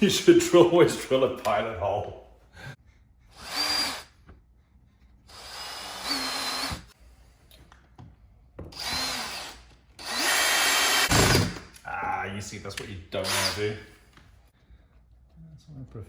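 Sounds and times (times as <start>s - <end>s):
power drill driving a screw: 3.3s - 4.2s, 5.3s - 6.9s, 8.7s - 11.6s, 13.2s - 13.8s.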